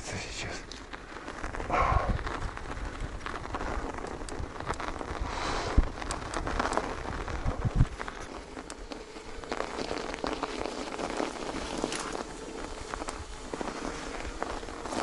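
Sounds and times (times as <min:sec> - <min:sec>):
squelching through slush and mud: 0:09.4 - 0:15.0.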